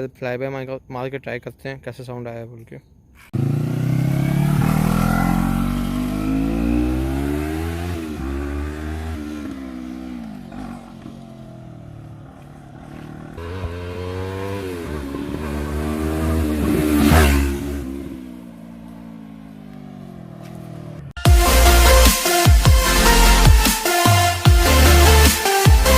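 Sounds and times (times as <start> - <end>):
motorcycle engine revving: 3.3 - 22.2.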